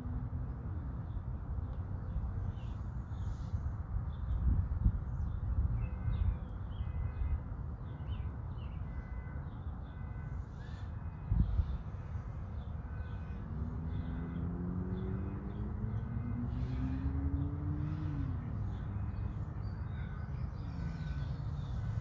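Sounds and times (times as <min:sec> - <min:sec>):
birds calling: 0:05.2 - 0:22.0.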